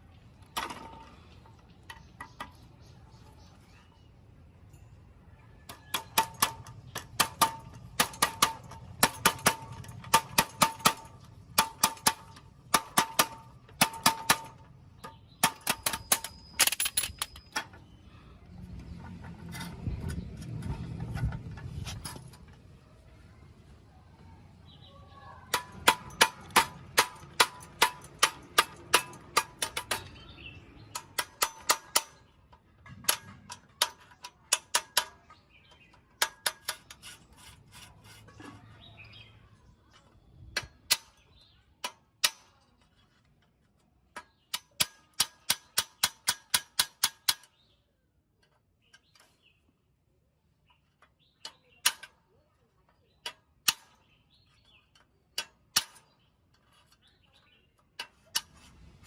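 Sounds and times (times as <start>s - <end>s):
hammer striking metal: 5.7s - 14.6s, 25.5s - 30.3s.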